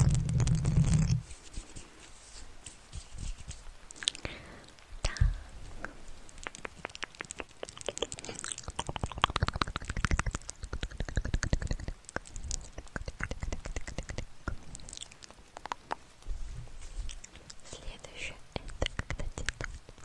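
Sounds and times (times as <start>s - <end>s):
soft low thumps: 0.0s - 1.4s, 4.9s - 5.8s
rapid small clicks and crackles: 0.0s - 20.0s.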